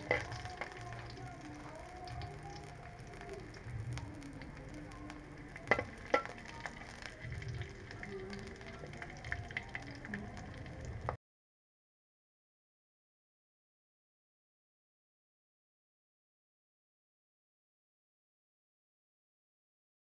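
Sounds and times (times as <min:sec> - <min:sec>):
garlic frying in a wok: 0:00.0 - 0:11.2.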